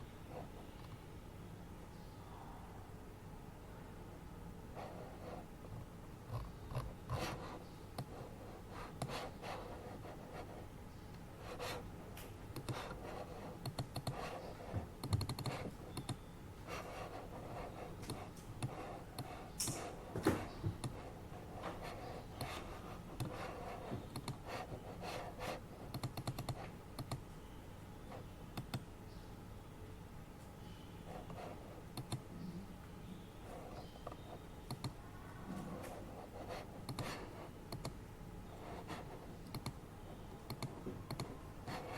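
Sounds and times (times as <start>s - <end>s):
keyboard typing clicks: 12.6s - 13.0s, 13.6s - 14.3s, 15.0s - 16.2s, 24.1s - 24.4s, 25.9s - 27.2s, 28.6s - 28.9s, 31.3s - 32.2s, 34.1s - 35.0s, 36.8s - 38.0s, 39.4s - 39.8s, 40.4s - 41.4s.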